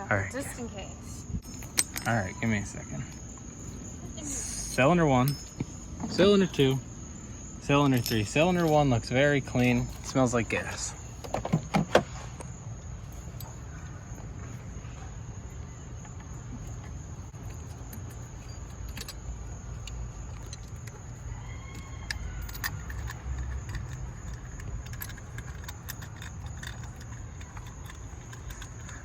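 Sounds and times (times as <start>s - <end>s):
metallic clinks of hand tools: 1.4s - 3.2s, 4.6s - 6.9s, 7.7s - 10.9s.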